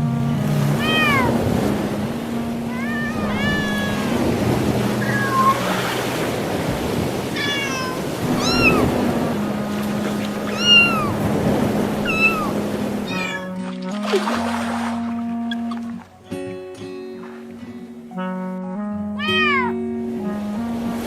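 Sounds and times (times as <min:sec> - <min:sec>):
plucked guitar tune: 0:00.0 - 0:05.6, 0:07.5 - 0:20.8
cat meowing: 0:00.8 - 0:01.4, 0:02.7 - 0:04.2, 0:05.0 - 0:05.7, 0:07.2 - 0:08.9, 0:10.5 - 0:11.2, 0:12.0 - 0:13.6, 0:19.2 - 0:19.8.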